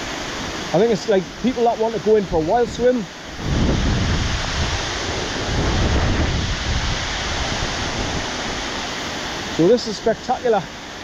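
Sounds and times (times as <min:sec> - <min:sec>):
waterfall rushing: 0:00.0 - 0:11.0
wind buffeting microphone: 0:01.3 - 0:09.6.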